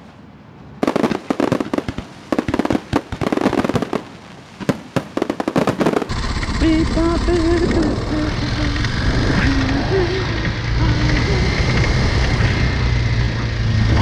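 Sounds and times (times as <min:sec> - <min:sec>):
fireworks bangs and crackles: 0:00.0 - 0:13.4
road noise: 0:00.0 - 0:14.0
motorcycle engine: 0:05.8 - 0:14.0.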